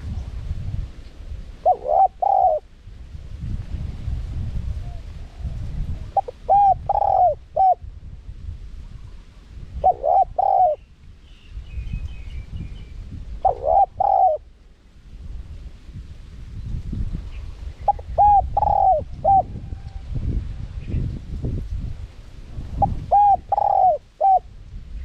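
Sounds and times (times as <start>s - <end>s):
dove cooing: 1.6s - 2.7s, 4.8s - 7.8s, 9.8s - 10.8s, 13.4s - 14.5s, 17.9s - 20.0s, 22.8s - 24.5s.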